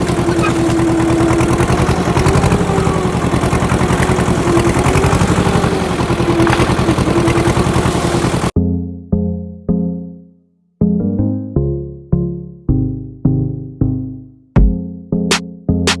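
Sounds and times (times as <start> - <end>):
engine idling: 0.0 - 8.6.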